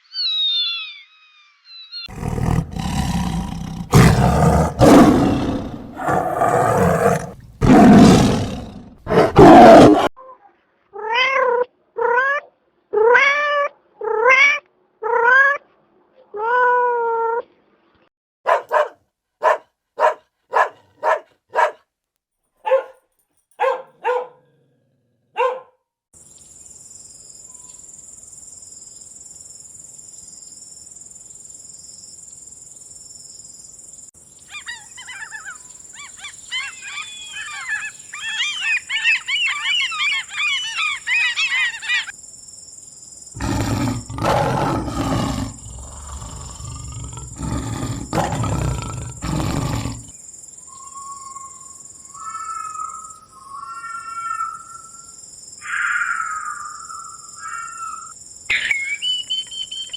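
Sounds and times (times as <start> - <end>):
high chirping calls: 0.0 - 2.8, 34.4 - 42.2, 50.6 - 59.9
loud low rough roar: 2.1 - 10.1, 43.4 - 50.1
dog barking: 18.4 - 21.9, 22.6 - 24.6, 25.3 - 25.8.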